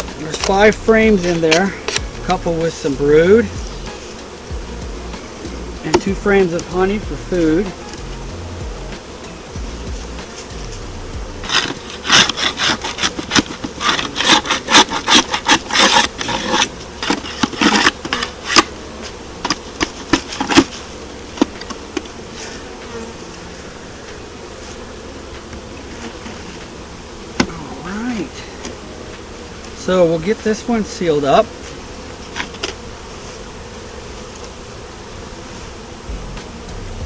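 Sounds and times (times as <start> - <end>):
honeybees buzzing: 0.0 - 37.0
wooden knocks and scrapes: 8.9 - 22.2.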